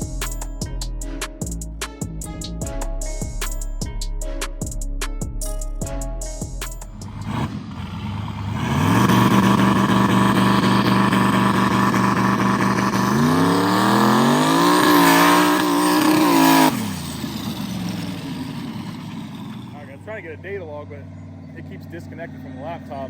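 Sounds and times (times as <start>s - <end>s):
truck engine revving: 6.8s - 23.0s.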